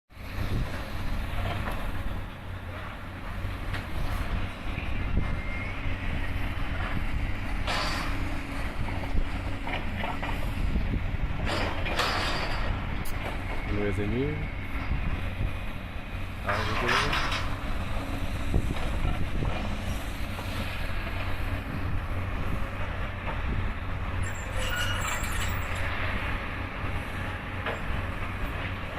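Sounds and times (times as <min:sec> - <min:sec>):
demolition machinery engine rumble: 0:00.1 - 0:28.9
high-pitched squeal: 0:24.2 - 0:25.8.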